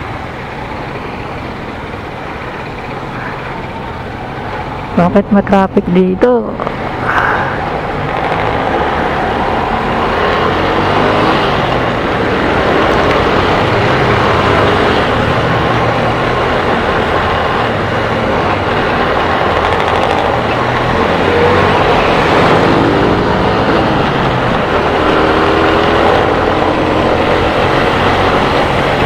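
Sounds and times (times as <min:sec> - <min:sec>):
other vehicles' engines: 0:00.0 - 0:29.0
motorcycle engine running: 0:06.6 - 0:29.0.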